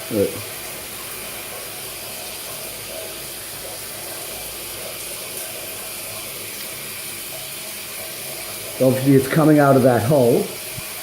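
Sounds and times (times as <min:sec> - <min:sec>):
water running: 0:00.0 - 0:11.0.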